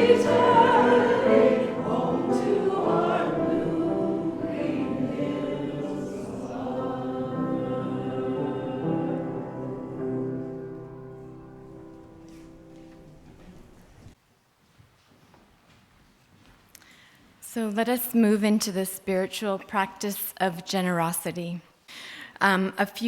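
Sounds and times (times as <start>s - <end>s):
choir singing: 0.0s - 12.1s.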